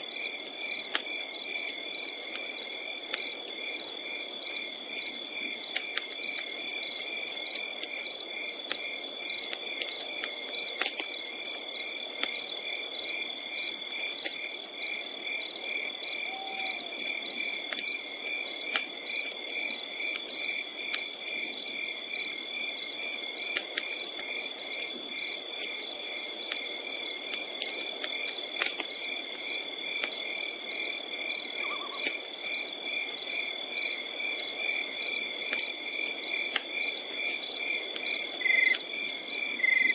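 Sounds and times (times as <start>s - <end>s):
campfire crackling and popping: 0.0s - 39.9s
crickets chirping: 0.0s - 39.9s
high insect trill: 35.0s - 39.9s.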